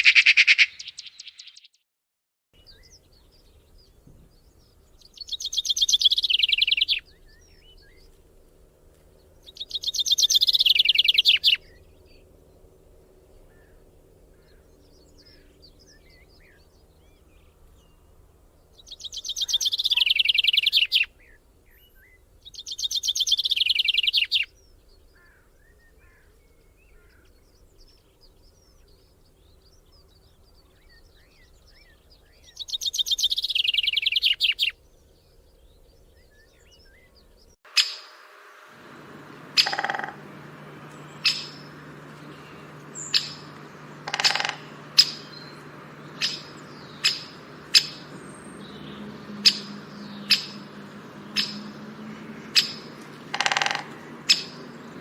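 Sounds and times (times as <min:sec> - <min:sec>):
sharp bird calls: 0:00.0 - 0:01.7, 0:04.6 - 0:08.1, 0:09.4 - 0:12.2, 0:18.8 - 0:21.4, 0:37.7 - 0:55.0
bird trills: 0:05.1 - 0:07.9, 0:09.5 - 0:11.8, 0:18.9 - 0:21.1, 0:37.7 - 0:55.0
faint bird chirps: 0:18.8 - 0:38.3, 0:39.5 - 0:55.0.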